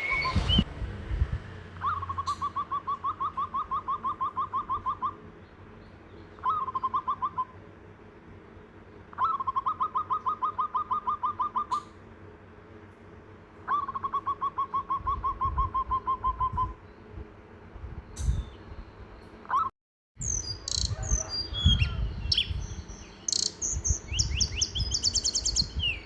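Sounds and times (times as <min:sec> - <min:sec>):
bird calling in rapid notes: 0:01.8 - 0:05.4, 0:06.2 - 0:07.6, 0:09.1 - 0:12.0, 0:13.6 - 0:16.8, 0:19.5 - 0:26.0.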